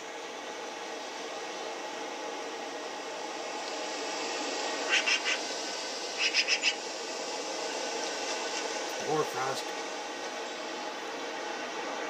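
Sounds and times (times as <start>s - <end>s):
outdoor ambience hiss: 0.0s - 12.0s.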